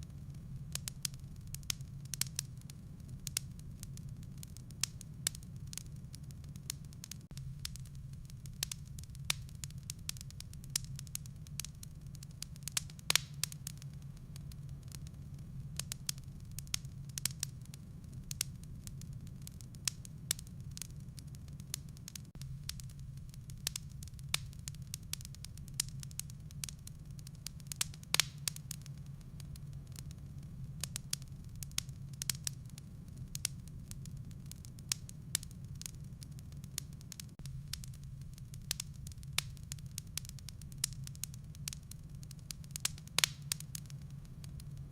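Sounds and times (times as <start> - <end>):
firewood crackling and popping: 0.0 - 44.9
low steady hum: 0.0 - 44.9.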